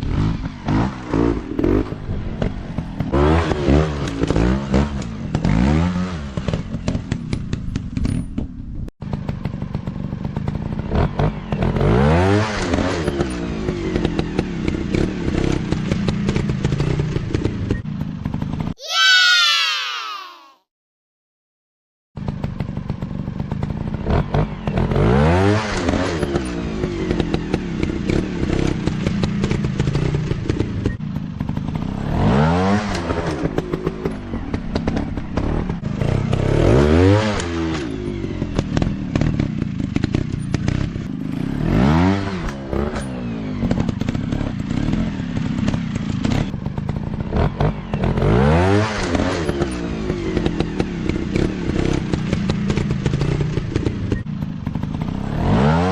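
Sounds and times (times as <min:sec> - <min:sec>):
dirt bike engines revving: 0:22.4 - 0:55.9.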